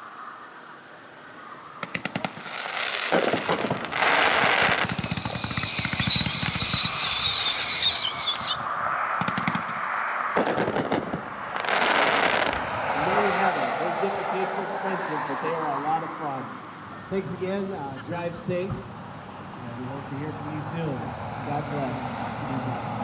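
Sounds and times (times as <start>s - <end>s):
fireworks shots and crackling: 1.8s - 15.7s
high warbling whistle: 4.7s - 8.8s.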